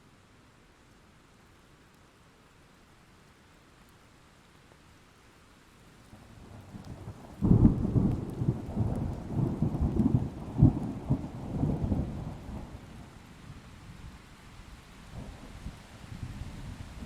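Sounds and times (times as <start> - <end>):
steady rain: 0.0 - 17.0
thunder crack and rumble: 6.6 - 12.9.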